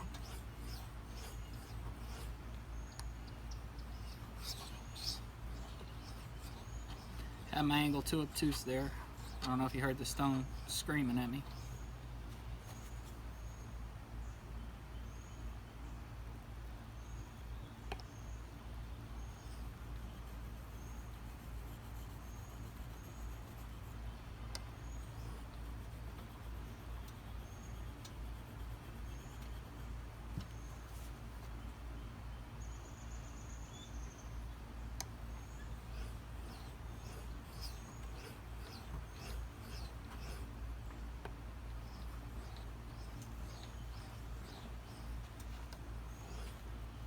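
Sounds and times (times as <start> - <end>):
whetstone squealing: 0.0 - 2.4, 3.8 - 10.8, 35.4 - 40.6, 41.8 - 46.7
knife scraping on whetstone: 0.0 - 3.0, 3.9 - 10.7, 35.4 - 40.6, 41.8 - 46.7.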